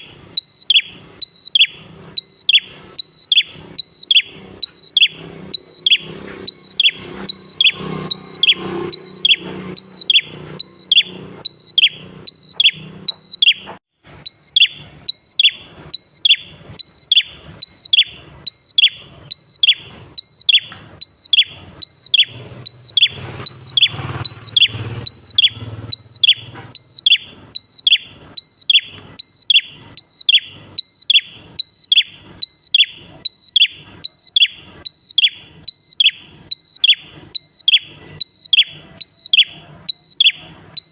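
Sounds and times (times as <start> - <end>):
bird calling high dropping note: 0.4 - 33.0.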